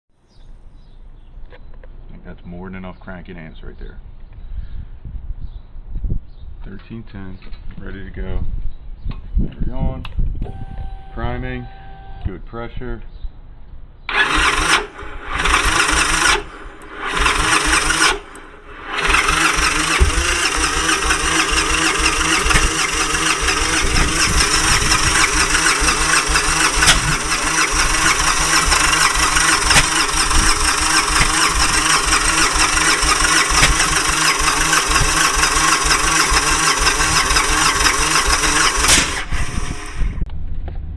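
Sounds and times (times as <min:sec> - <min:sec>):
engine popping: 0:14.1 - 0:40.3
motorcycle starter cranking: 0:14.1 - 0:40.3.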